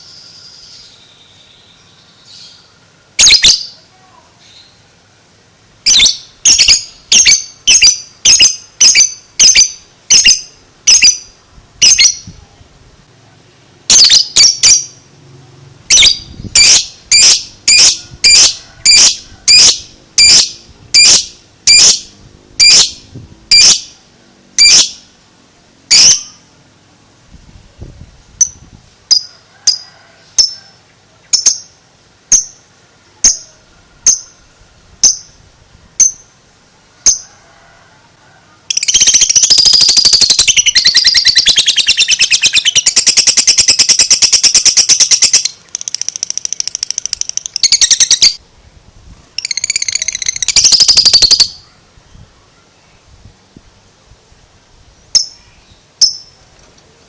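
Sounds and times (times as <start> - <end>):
bird chirping: 0.0 - 3.8, 5.9 - 12.3, 13.9 - 15.0, 38.7 - 48.4, 49.4 - 52.2
bird chattering trill: 3.2 - 3.8, 5.9 - 12.3, 13.9 - 15.0, 38.7 - 48.4, 49.4 - 51.7.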